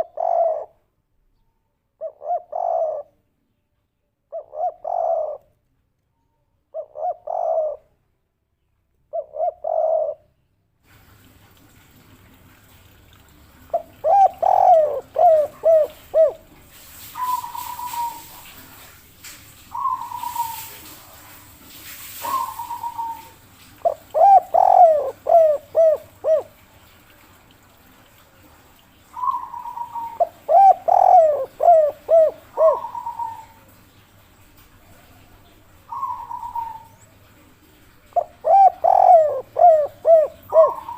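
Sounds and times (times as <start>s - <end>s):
dove cooing: 0.0s - 0.8s, 2.0s - 3.2s, 4.3s - 5.5s, 6.7s - 7.9s, 9.1s - 10.3s, 13.7s - 18.9s, 19.7s - 21.4s, 22.2s - 26.6s, 29.2s - 33.8s, 34.8s - 37.1s, 37.7s - 40.9s.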